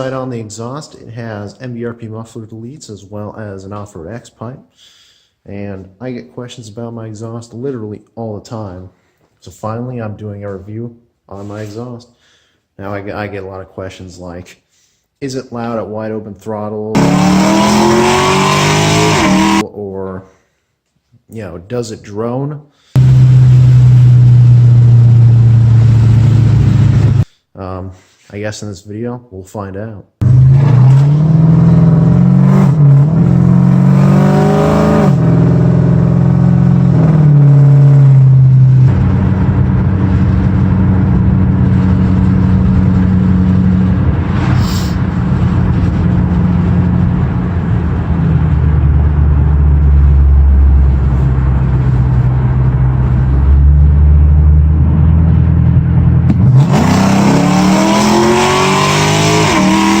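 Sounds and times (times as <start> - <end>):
car engine accelerating hard: 17.0 - 19.6, 23.0 - 27.2, 30.2 - 60.0.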